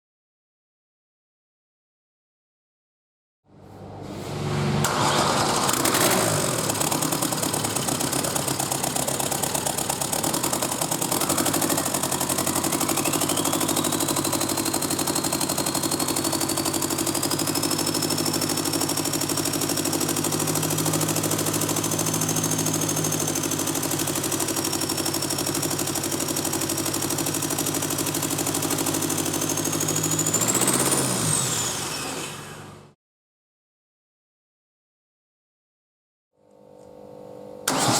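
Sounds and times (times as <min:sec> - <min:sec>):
diesel engine starting and running: 0:03.5 - 0:33.0, 0:37.6 - 0:37.9
engine revving: 0:03.6 - 0:32.9, 0:37.7 - 0:37.9.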